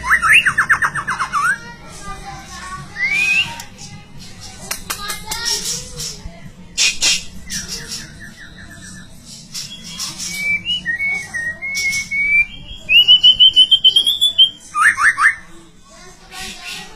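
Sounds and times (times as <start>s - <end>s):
bird singing: 0.0s - 1.7s, 6.8s - 15.5s
short harsh bird calls: 6.8s - 8.2s.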